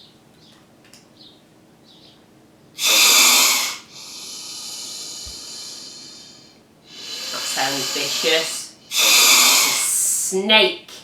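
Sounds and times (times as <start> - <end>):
snake hissing: 2.8 - 10.3.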